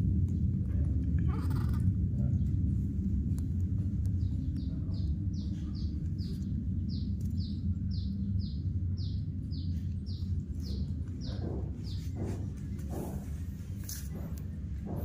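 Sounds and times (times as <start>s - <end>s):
low hum: 0.0s - 15.0s
bird chirping: 4.2s - 13.2s.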